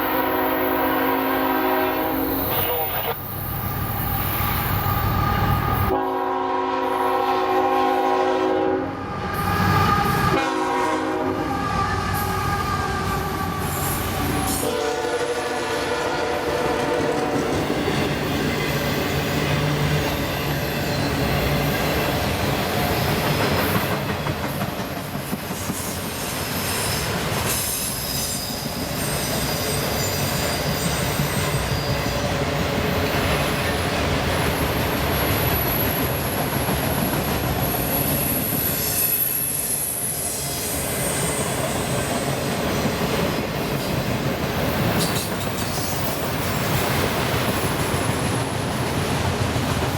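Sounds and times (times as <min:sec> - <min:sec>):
high-pitched wheel squeal: 0:37.7 - 0:42.2
freight cars rumbling on rails: 0:41.5 - 0:49.9.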